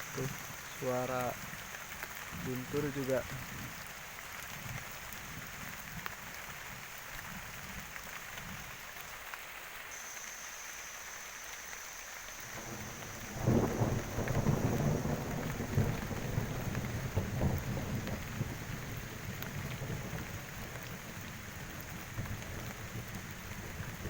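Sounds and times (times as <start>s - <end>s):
heavy rain falling: 0.0s - 24.0s
thunder rumbling: 12.3s - 24.0s.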